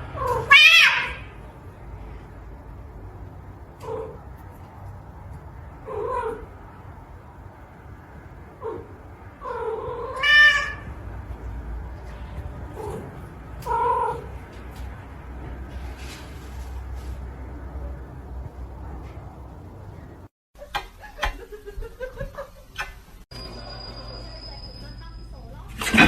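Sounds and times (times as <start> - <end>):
cat meowing: 0.2 - 1.3, 8.6 - 11.0, 13.6 - 14.3.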